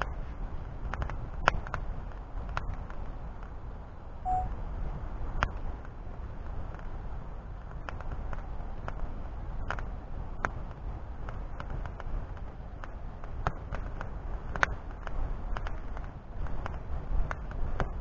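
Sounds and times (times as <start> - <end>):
wood fire crackling: 5.6 - 18.0.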